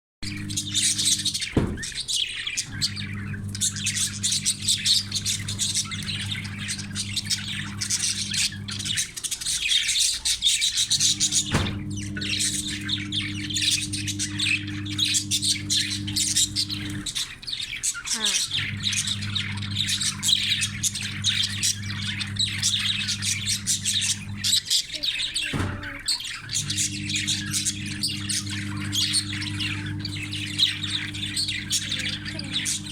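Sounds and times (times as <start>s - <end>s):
low hum: 0.2s - 2.0s, 10.9s - 17.2s, 18.5s - 24.6s, 26.5s - 32.9s
budgerigars chattering: 0.2s - 32.9s.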